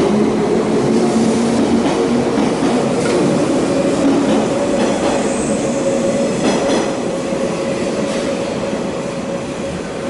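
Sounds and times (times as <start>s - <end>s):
train wheels clacking over rail joints: 4.1s - 5.3s, 6.4s - 7.0s.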